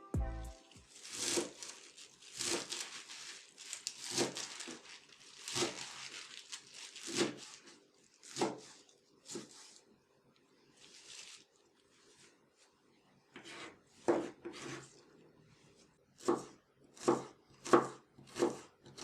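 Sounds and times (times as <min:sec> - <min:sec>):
rustling crunching food handling: 0:00.7 - 0:09.8, 0:10.7 - 0:12.4.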